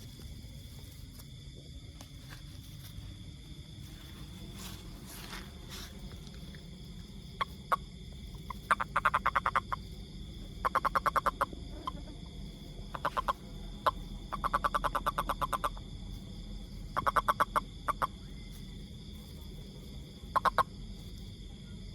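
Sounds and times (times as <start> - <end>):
toad calling with clicking pulses: 7.0 - 18.7, 20.2 - 21.3.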